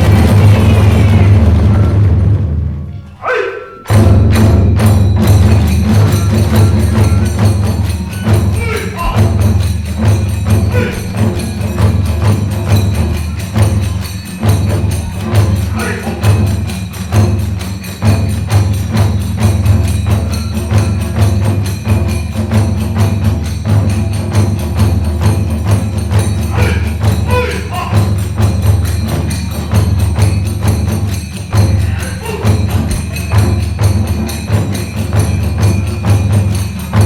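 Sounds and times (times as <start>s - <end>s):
taiko drums beating: 0.0s - 2.8s, 3.9s - 37.0s
hand cymbals clashing: 3.8s - 37.0s
bamboo flute playing: 6.1s - 9.2s.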